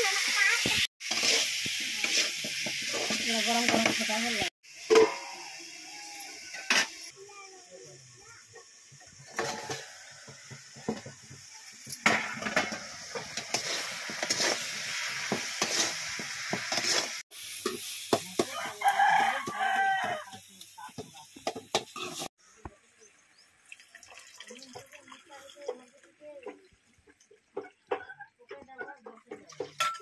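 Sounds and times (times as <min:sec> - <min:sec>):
tomatoes sizzling in a pan: 0:00.0 - 0:24.0
spatula scraping a pan: 0:01.0 - 0:04.2, 0:12.1 - 0:20.4.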